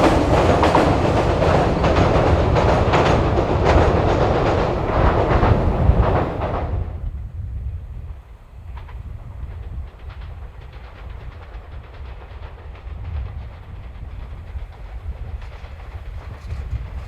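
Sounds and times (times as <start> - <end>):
wheels clacking over rail joints: 0.0 - 6.9
train rumbling over steel bridge: 0.0 - 17.0.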